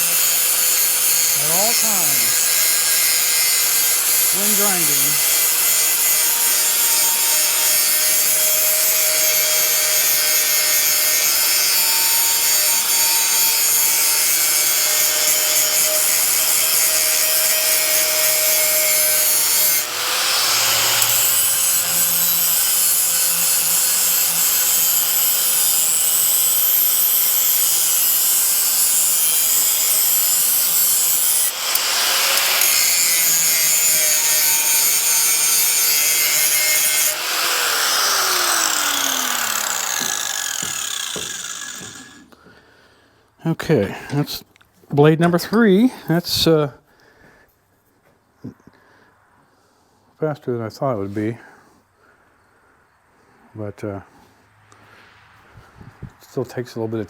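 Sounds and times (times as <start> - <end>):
power grinder grinding steel: 0.0 - 42.4.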